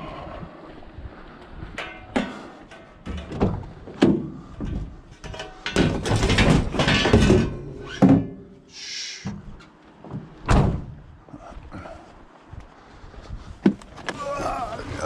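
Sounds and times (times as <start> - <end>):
scraping and rattling: 1.8 - 8.4
scrap knocking and clanking: 1.8 - 8.5.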